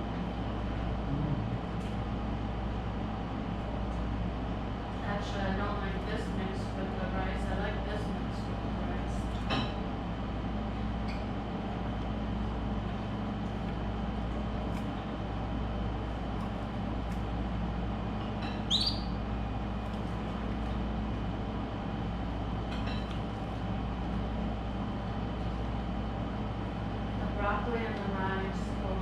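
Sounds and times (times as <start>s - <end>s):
low background hum: 0.0s - 29.0s
canary rising chirp: 18.6s - 19.3s.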